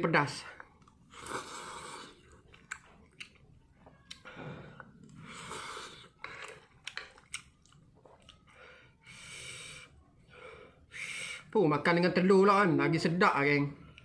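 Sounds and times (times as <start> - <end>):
close-miked chewing of noodles: 0.6 - 10.2
airy breath sounds: 8.5 - 11.5.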